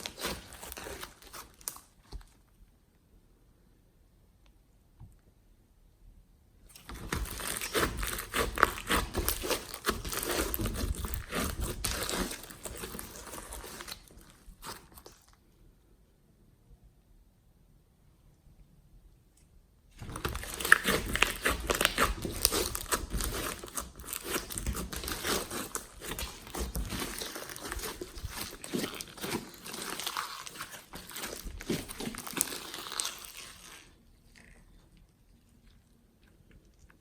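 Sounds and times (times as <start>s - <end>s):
slime squeezed by hand crackling: 0.0s - 1.9s, 6.8s - 15.2s, 20.0s - 34.0s.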